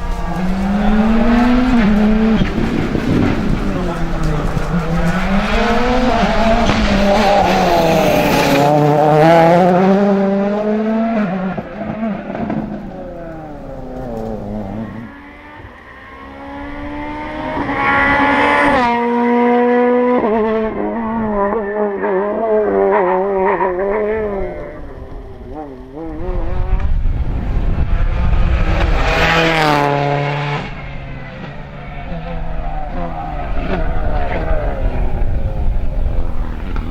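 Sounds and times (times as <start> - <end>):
rally car engine revving: 0.0 - 36.9.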